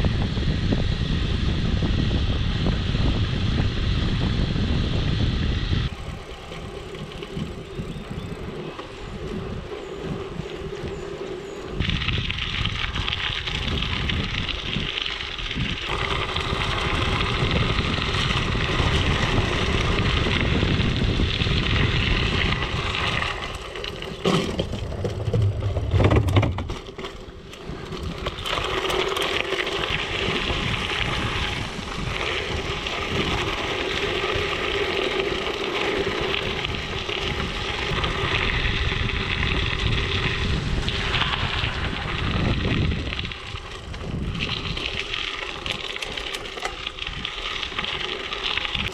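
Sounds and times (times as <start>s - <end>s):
bike tyres rolling over gravel: 0.0s - 48.9s.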